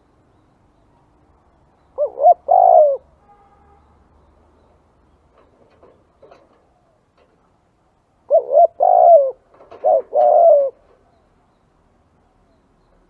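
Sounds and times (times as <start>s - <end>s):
dove cooing: 2.0s - 3.1s, 8.2s - 11.0s.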